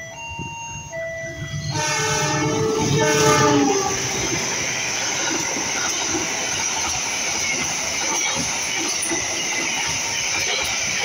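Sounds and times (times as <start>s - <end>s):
passenger coaches rumbling past: 0.0s - 11.0s
locomotive horn chord: 1.5s - 4.4s.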